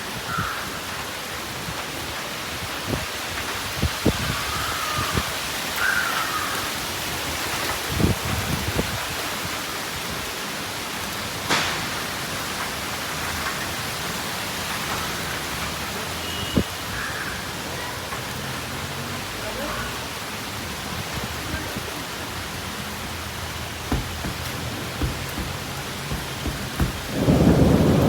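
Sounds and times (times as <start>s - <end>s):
steady rain: 0.0s - 28.0s
short low thuds: 23.6s - 28.0s.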